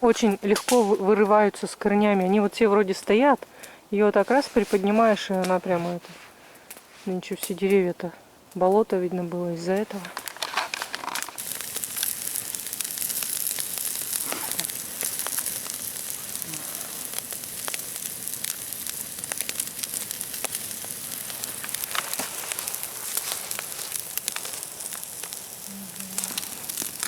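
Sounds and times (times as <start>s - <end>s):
campfire crackling and popping: 0.0s - 27.0s
fire hissing: 9.6s - 27.0s.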